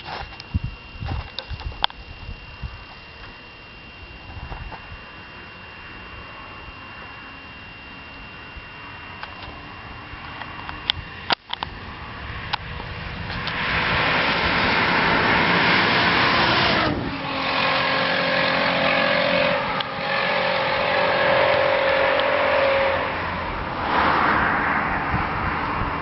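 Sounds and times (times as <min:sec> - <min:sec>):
car engine revving: 0:11.1 - 0:26.0.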